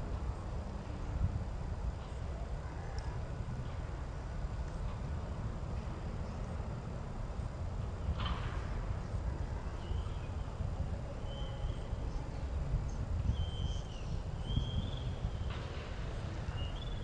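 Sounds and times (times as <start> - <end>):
high whistled bird calls: 11.2 - 11.9, 13.3 - 15.5.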